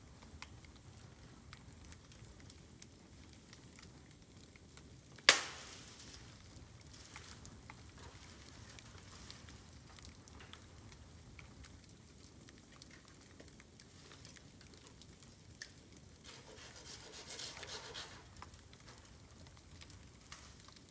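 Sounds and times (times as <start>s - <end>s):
bamboo burning in campfire: 0.0s - 20.9s
fire crackles: 0.0s - 20.9s.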